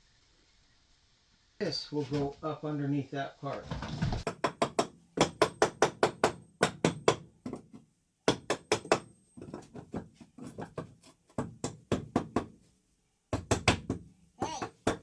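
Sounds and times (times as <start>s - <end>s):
hammer striking wood: 4.2s - 7.7s, 8.3s - 12.6s, 13.4s - 15.0s.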